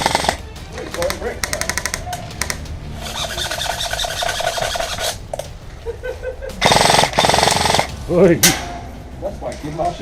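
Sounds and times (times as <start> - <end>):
airsoft rifles firing full auto: 0.0 - 0.4, 6.6 - 7.9.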